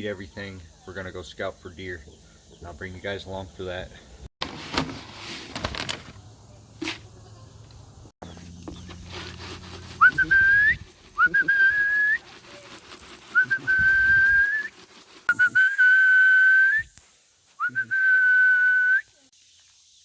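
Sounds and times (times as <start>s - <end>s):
person whistling long notes: 9.9s - 12.2s, 13.3s - 17.0s, 17.6s - 19.2s.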